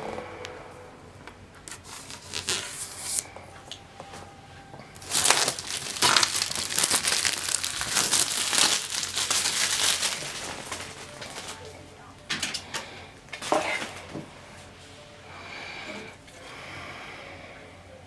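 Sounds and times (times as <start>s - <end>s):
packaging crinkling: 1.7s - 3.3s, 5.0s - 11.7s.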